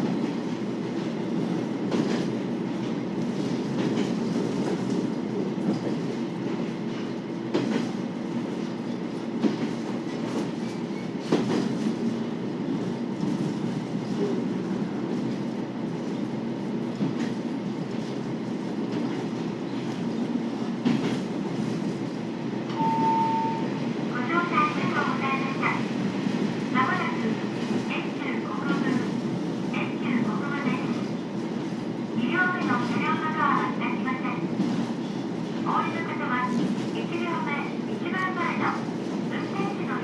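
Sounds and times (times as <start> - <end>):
short tone: 22.7 - 23.7.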